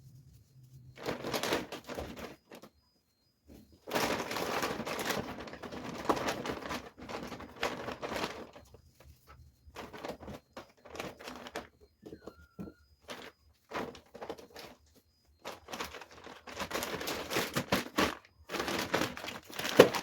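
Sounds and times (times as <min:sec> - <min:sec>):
plastic bags crinkling: 0:00.9 - 0:02.7, 0:03.9 - 0:08.8, 0:15.4 - 0:20.0.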